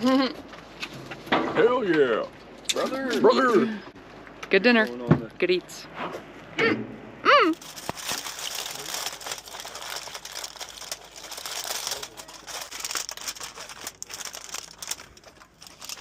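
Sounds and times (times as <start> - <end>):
packaging crinkling and rustling: 7.5 - 16.0.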